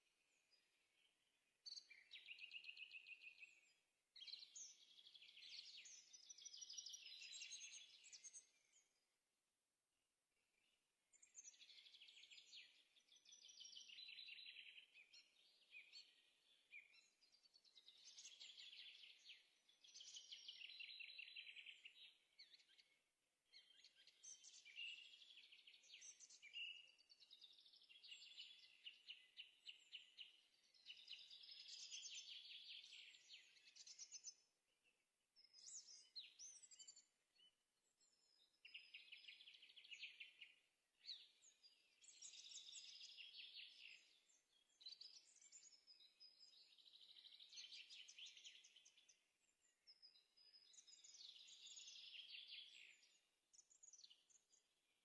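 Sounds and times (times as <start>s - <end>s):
songbird trilling and chirping: 41.2s - 54.6s.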